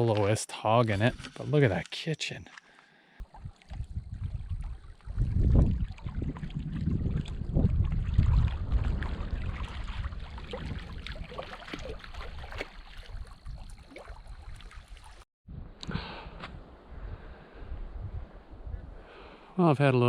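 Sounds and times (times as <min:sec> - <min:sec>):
water lapping against shore: 0:02.4 - 0:15.2
wind on microphone: 0:03.2 - 0:19.5.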